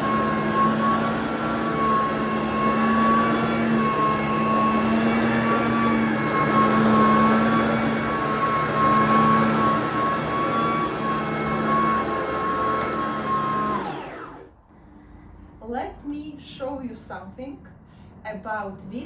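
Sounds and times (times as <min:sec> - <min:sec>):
cordless vacuum cleaner running: 0:00.0 - 0:14.7.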